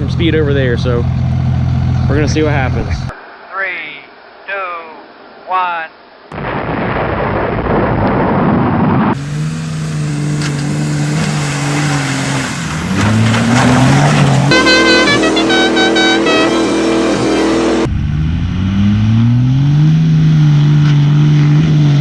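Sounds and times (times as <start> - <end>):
pickup engine revving: 0.0 - 3.1, 9.1 - 22.0.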